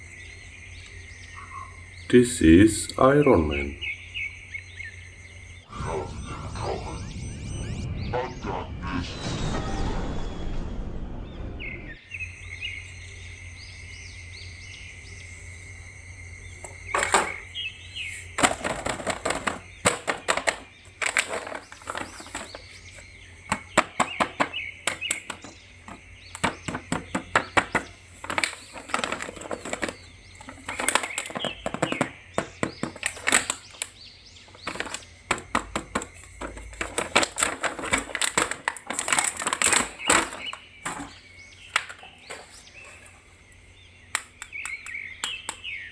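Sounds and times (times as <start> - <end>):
steady low hum: 3.9 - 18.4.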